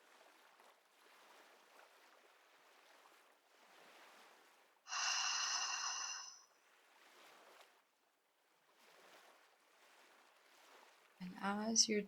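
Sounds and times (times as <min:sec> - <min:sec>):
faint ocean waves: 0:00.1 - 0:12.0
person exhaling through mouth: 0:04.9 - 0:06.4.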